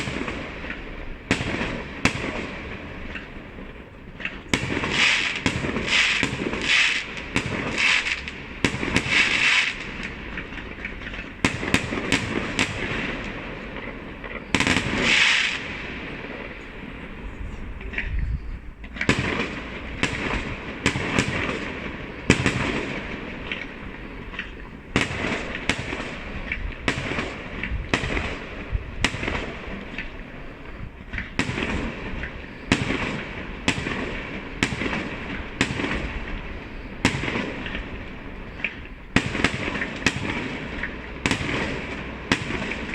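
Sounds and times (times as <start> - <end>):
fireworks banging: 0.0 - 42.9
fireworks crackling: 0.0 - 42.9.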